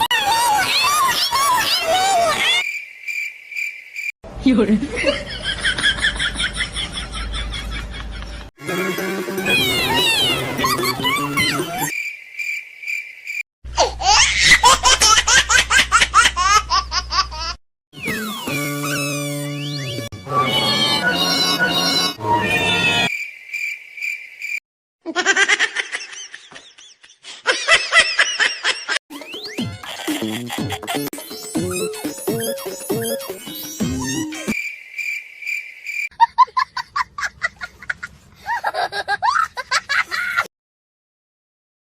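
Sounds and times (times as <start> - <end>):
high-pitched laughter effect: 0.0 - 2.6, 4.9 - 11.9, 13.8 - 17.6, 20.2 - 23.1, 25.1 - 26.7, 27.4 - 34.6
cricket chirp sound effect: 2.5 - 4.1, 11.8 - 13.4, 23.1 - 24.6, 34.3 - 36.1.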